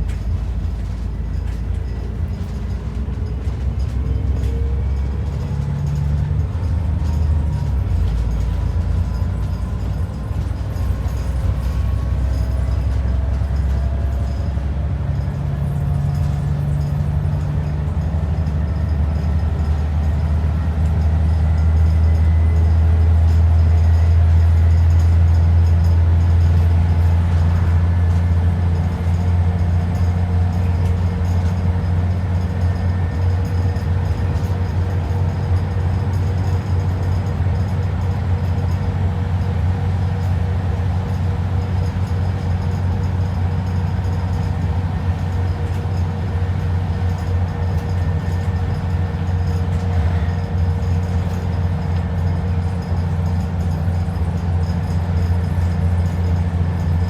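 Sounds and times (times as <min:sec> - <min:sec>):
bus diesel engine drone: 0:00.0 - 0:57.0.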